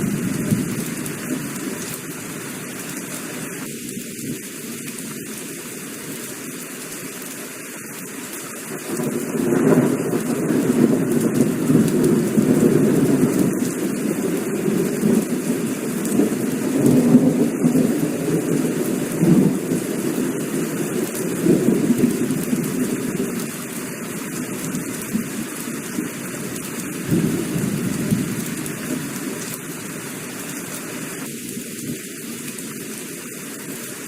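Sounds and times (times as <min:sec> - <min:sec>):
heavy rain: 0:00.0 - 0:34.0
rolling thunder: 0:09.0 - 0:20.6, 0:27.1 - 0:29.1.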